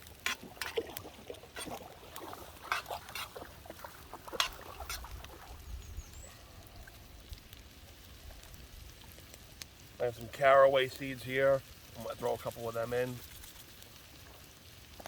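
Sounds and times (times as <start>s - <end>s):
utensil scraping frying pan: 0.0s - 0.8s, 1.5s - 1.8s, 2.5s - 3.4s, 4.3s - 5.0s
low sizzle: 0.0s - 15.0s.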